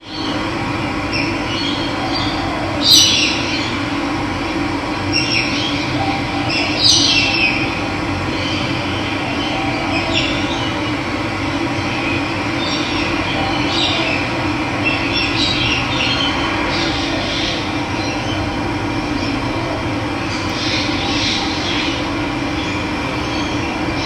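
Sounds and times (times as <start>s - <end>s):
birds calling: 0.0s - 24.0s.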